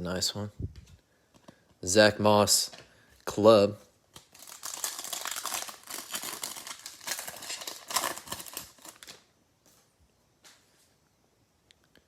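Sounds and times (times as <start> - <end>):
foil wrapper crinkling and tearing: 4.1 - 9.3.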